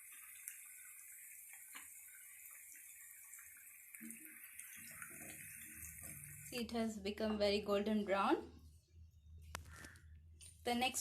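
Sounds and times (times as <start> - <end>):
small crackles and ticks: 0.0 - 6.3
chicken deep-frying in hot oil: 0.0 - 8.5.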